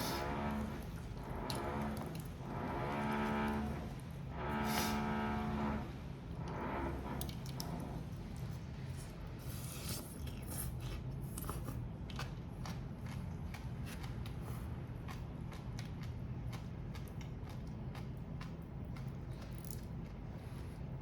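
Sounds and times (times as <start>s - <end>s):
clicks of food being eaten: 10.2s - 20.2s.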